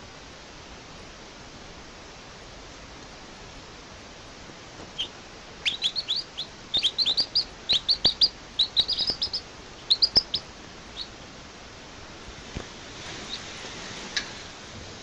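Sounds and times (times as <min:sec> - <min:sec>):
steady hiss: 0:00.0 - 0:15.0
baby bird chirping: 0:04.9 - 0:11.2.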